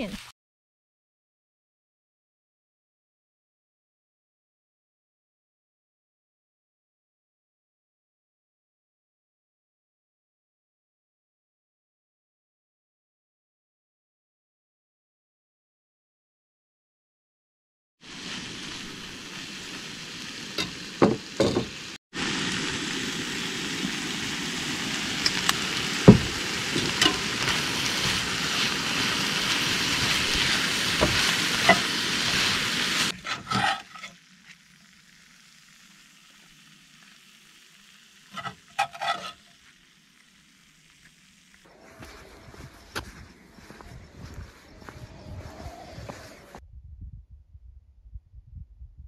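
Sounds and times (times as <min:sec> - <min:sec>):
food sizzling in a skillet: 0:18.0 - 0:42.8
metal spatula scraping a pan: 0:26.7 - 0:34.6, 0:38.3 - 0:39.7.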